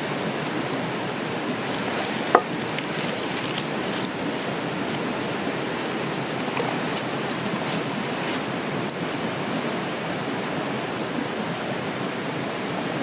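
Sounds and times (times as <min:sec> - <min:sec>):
campfire crackling: 0:00.0 - 0:09.3
steady rushing noise: 0:00.0 - 0:13.0.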